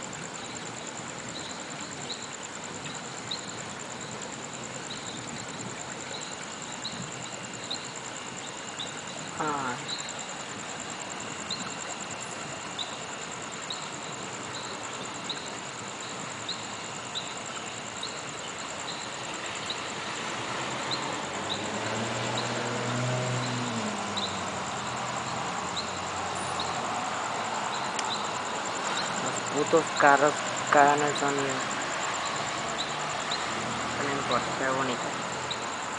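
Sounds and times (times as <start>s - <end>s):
crickets trilling: 0.0s - 35.9s
passing car engine hum: 19.9s - 35.9s.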